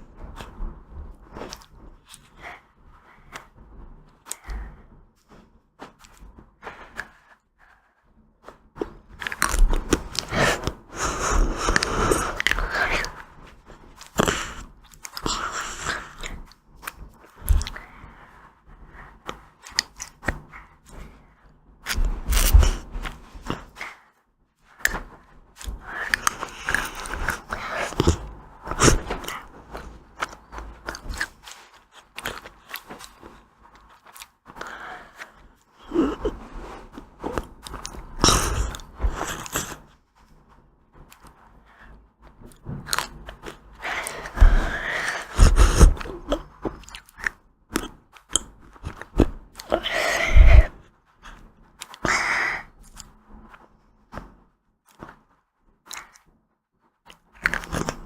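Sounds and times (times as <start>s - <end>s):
chewing: 14.0s - 17.8s, 25.6s - 36.4s, 42.8s - 52.1s, 55.9s - 56.3s, 57.1s - 58.0s
crunchy bites of ice cream: 42.8s - 50.7s, 55.9s - 56.3s, 57.1s - 58.0s.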